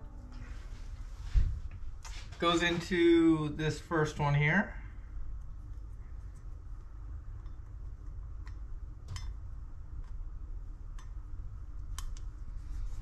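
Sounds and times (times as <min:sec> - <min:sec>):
low steady background hum: 0:00.0 - 0:13.0
light clicks and taps: 0:05.4 - 0:09.4.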